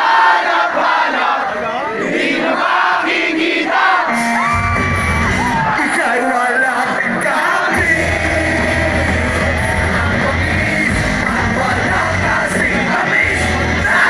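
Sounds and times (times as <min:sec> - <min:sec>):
live punk rock band: 0:04.0 - 0:14.0
heavy bass: 0:04.5 - 0:05.7, 0:07.7 - 0:14.0
person singing: 0:06.6 - 0:14.0.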